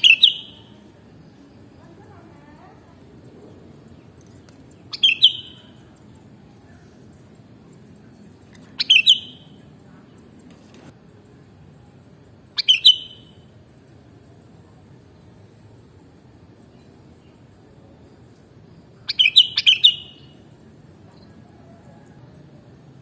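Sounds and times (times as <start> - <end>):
bird calling in bursts: 0.0 - 0.7, 4.9 - 5.9, 8.6 - 9.6, 12.6 - 13.4, 19.1 - 20.4.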